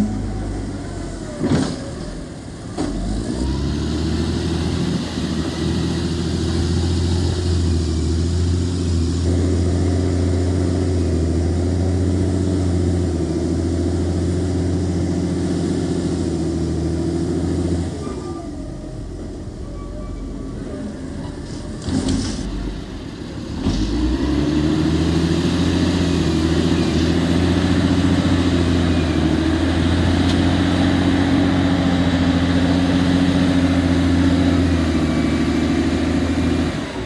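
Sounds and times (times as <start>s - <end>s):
engine running: 0.0s - 37.0s.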